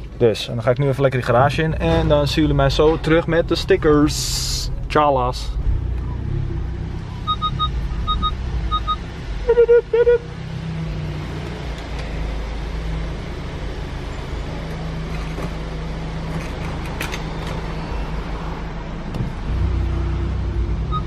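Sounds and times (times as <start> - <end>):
car engine idling: 0.0 - 19.5
loud double beep: 7.2 - 10.2.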